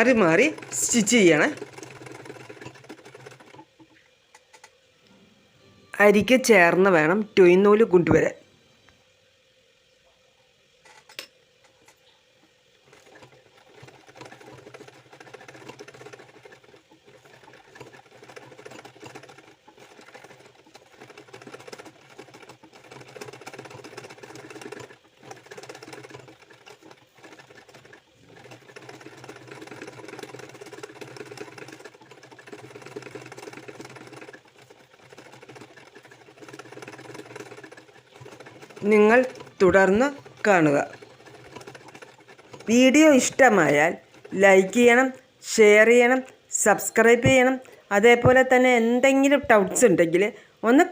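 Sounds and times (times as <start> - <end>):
sewing machine stitching: 0.0 - 4.7, 10.8 - 12.0, 12.8 - 47.6.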